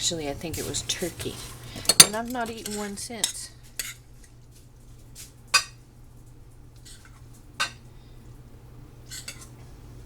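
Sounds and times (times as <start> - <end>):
utensils clinking against dish: 0.6 - 4.0, 9.1 - 9.5.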